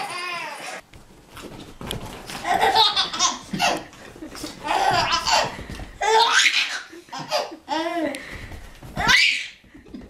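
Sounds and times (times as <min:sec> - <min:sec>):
baby laughing: 0:02.4 - 0:08.2.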